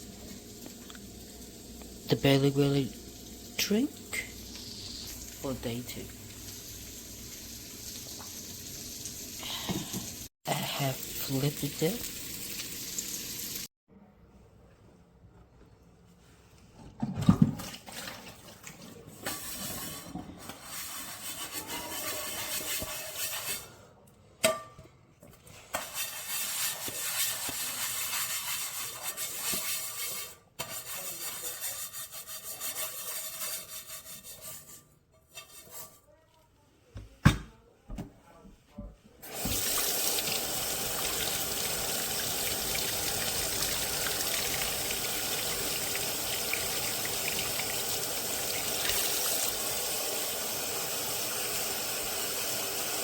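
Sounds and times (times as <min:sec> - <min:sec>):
kitchen tap running: 0:00.0 - 0:13.7, 0:39.2 - 0:53.0.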